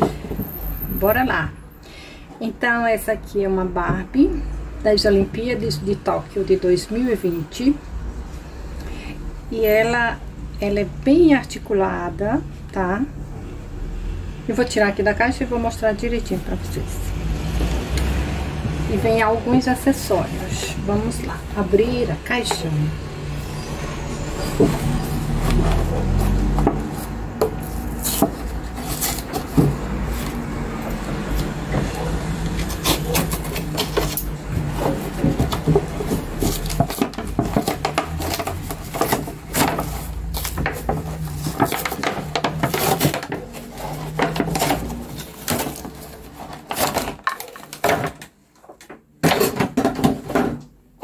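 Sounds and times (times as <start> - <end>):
cardboard rubbing and scraping: 24.2 - 47.6.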